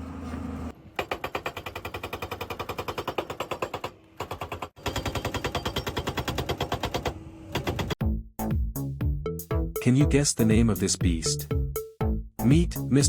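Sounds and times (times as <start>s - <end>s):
hydraulic breaker hammering rock: 1.0s - 8.0s.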